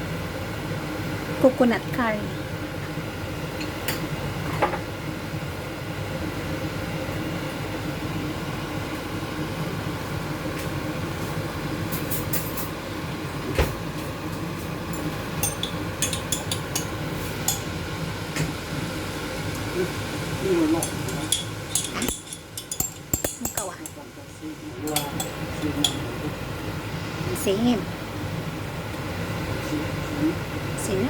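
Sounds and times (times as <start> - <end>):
low rumble of cooking pot: 13.0 - 30.8
utensil clinking against pot: 15.4 - 17.7, 20.8 - 24.0, 24.8 - 26.0.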